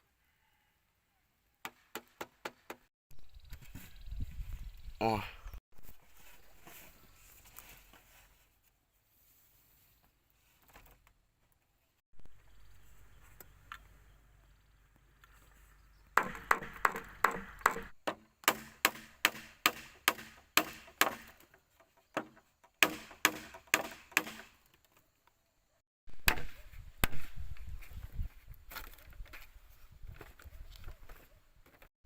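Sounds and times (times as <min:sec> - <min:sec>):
outdoor background noise: 0:00.0 - 0:31.9
blade chopping wood: 0:16.2 - 0:21.5, 0:22.2 - 0:24.6.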